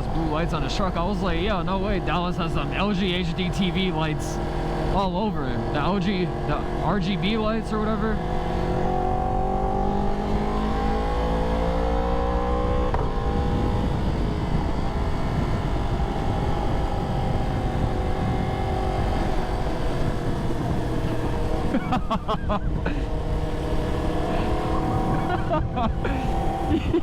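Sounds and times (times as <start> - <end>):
motorcycle engine accelerating: 0.0 - 27.0
wind rush: 12.9 - 27.0.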